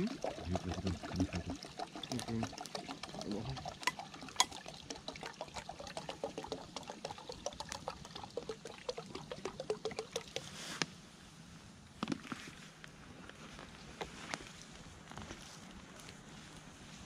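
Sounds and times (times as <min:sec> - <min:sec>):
coffee pouring into a cup: 0:00.0 - 0:10.5.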